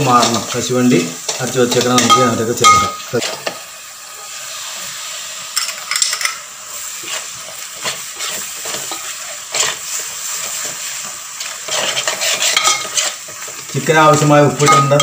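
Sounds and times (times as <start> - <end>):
food sizzling in oil: 0.0 - 15.0
metal spatula scraping a pot: 7.0 - 13.6.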